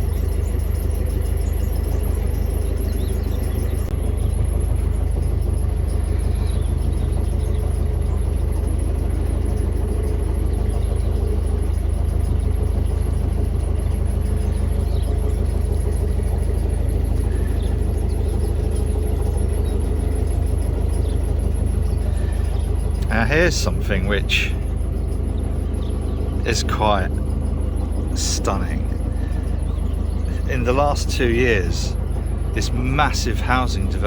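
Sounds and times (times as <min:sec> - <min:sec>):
boat diesel engine running: 0:00.0 - 0:34.0.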